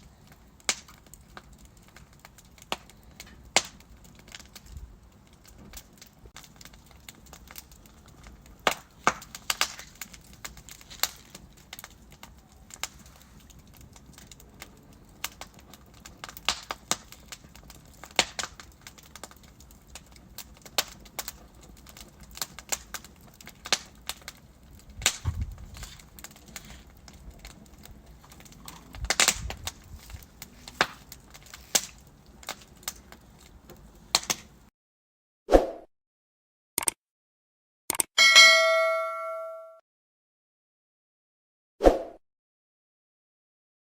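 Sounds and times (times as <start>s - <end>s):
burning logs crackling: 0.0s - 34.7s.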